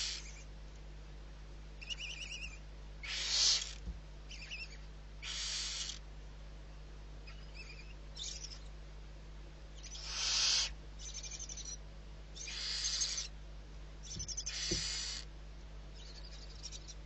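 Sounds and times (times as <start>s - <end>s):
barn owl hissing calls: 0.0s - 0.5s, 1.8s - 6.0s, 7.2s - 8.7s, 9.7s - 13.3s, 14.0s - 15.3s, 15.9s - 17.0s.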